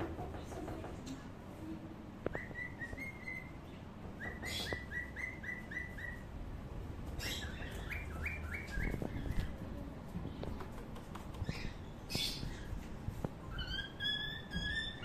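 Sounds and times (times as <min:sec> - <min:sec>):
bird chirping: 0:02.3 - 0:06.3, 0:07.1 - 0:09.7, 0:11.3 - 0:12.9, 0:13.5 - 0:15.0.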